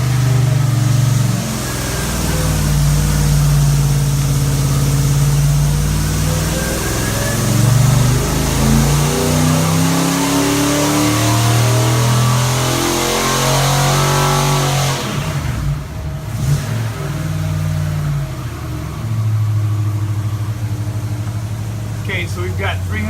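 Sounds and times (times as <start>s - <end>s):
engine revving at full throttle: 0.0s - 23.0s.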